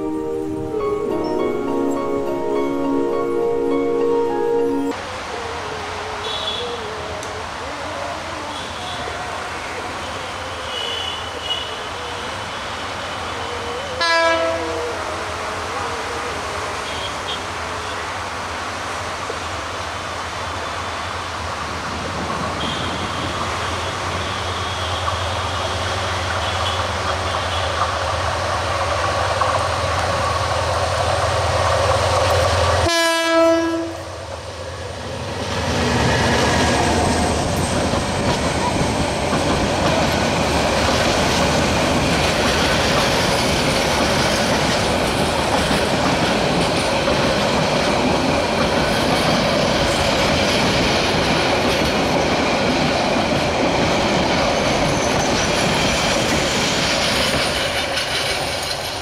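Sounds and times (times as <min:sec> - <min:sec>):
diesel locomotive engine drone: 0:00.0 - 0:59.0
train horn blast: 0:06.2 - 0:06.8, 0:08.5 - 0:15.2, 0:22.6 - 0:25.8, 0:32.8 - 0:34.2
clickety-clack of wheels: 0:37.5 - 0:59.0.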